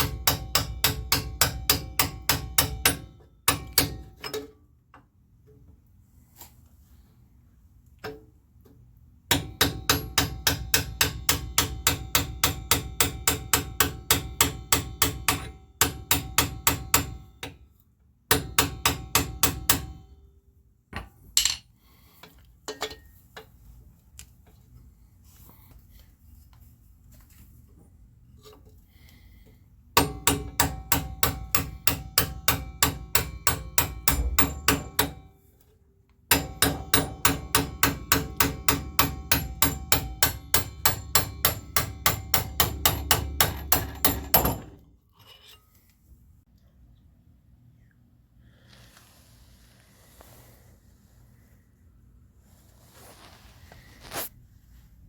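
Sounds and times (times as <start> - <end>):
impact wrench hammering: 0.0 - 4.5, 9.3 - 17.6, 18.3 - 20.1, 30.0 - 35.4, 36.3 - 44.8
tools clicking and knocking: 0.0 - 5.7, 8.0 - 17.6, 21.0 - 23.6, 36.3 - 45.6.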